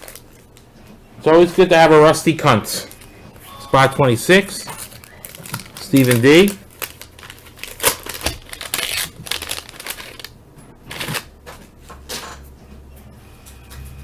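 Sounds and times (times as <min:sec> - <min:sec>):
wax paper wrapper crinkling: 0:00.0 - 0:00.5, 0:02.8 - 0:11.3
cards being handled: 0:02.8 - 0:10.3.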